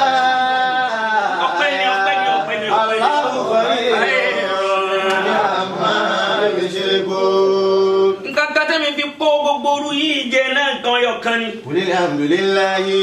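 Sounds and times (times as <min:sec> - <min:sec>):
man chanting melodically: 0:00.0 - 0:06.5, 0:09.3 - 0:13.0.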